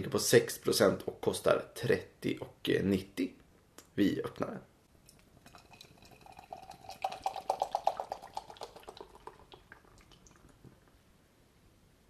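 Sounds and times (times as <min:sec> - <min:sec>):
beer glugging into a glass: 0:05.0 - 0:10.7.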